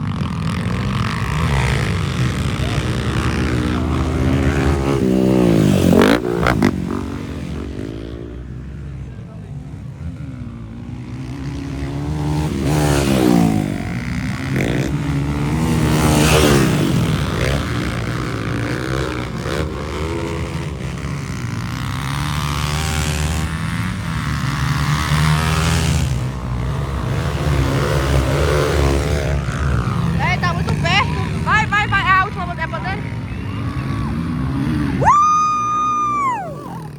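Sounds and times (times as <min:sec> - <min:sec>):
dirt bike engine revving: 0:00.0 - 0:08.8, 0:09.9 - 0:36.9.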